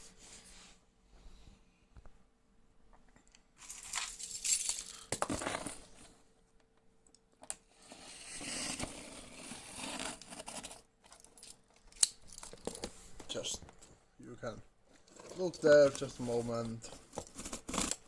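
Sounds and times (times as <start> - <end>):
packing tape scraping and tearing: 7.8 - 10.9, 17.1 - 18.0.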